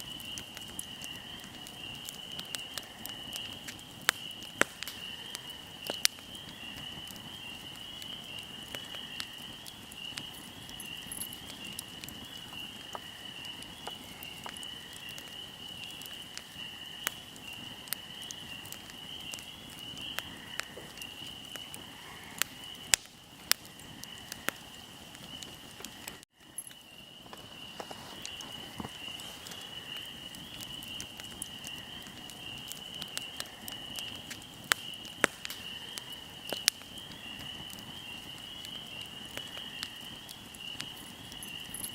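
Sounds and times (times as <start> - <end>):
insects chirring: 0.0 - 41.9
wood fire crackling and popping: 0.0 - 41.9.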